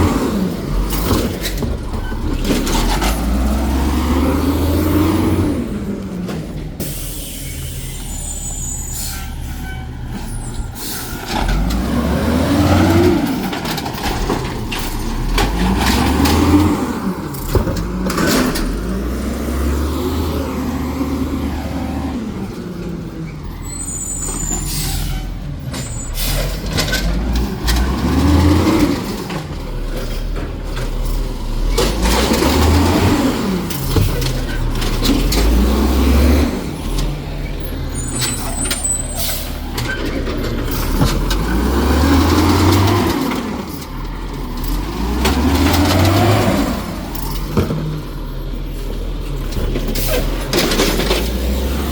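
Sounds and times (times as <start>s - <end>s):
garbage truck engine revving: 0.0s - 8.7s, 10.0s - 51.9s
air brake hisses: 6.8s - 9.7s.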